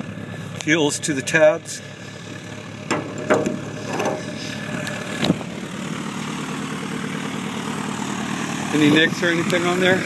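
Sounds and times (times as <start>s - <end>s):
engine idling: 0.0s - 10.0s
short knocks and clicks: 2.9s - 4.3s.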